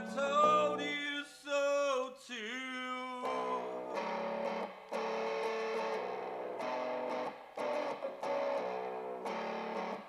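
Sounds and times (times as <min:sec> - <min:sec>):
guitar strumming chords: 0:00.0 - 0:00.9, 0:03.2 - 0:10.0.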